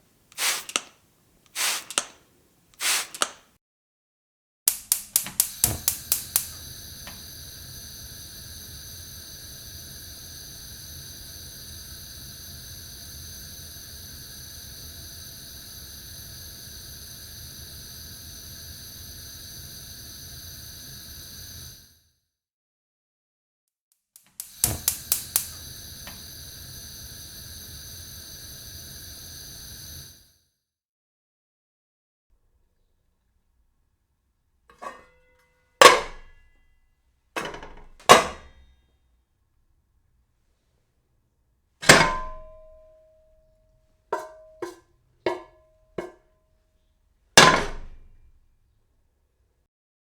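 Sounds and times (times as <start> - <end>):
burner gas hissing with whistle: 0.0 - 3.5, 4.7 - 22.0, 24.3 - 30.4
gas hob igniter clicking: 0.3 - 3.5, 4.7 - 21.8, 24.3 - 30.2, 35.8 - 36.4, 37.4 - 38.6, 41.8 - 42.8
metal kitchenware clanging: 34.7 - 36.3, 37.4 - 38.6.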